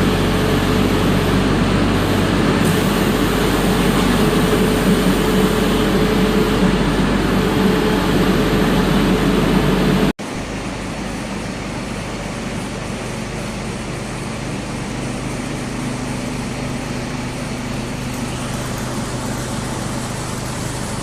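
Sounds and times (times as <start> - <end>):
diesel engine humming: 0.0 - 10.8.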